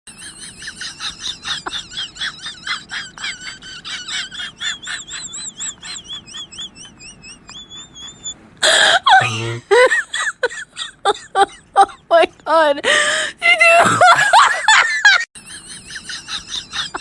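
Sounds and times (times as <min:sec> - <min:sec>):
high chirping calls: 0:05.0 - 0:08.4.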